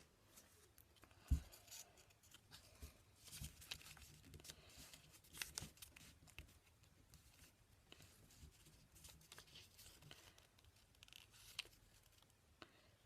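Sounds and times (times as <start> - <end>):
paper rustling and crinkling: 1.2 - 12.3
paper crackling: 3.2 - 6.5.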